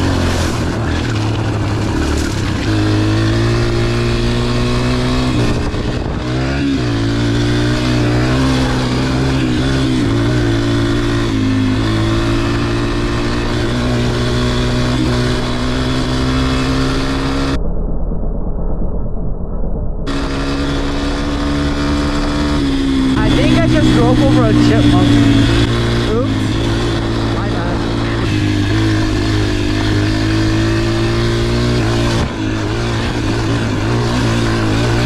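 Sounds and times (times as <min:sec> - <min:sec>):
dirt bike engine running: 0:00.0 - 0:17.6, 0:20.1 - 0:35.0.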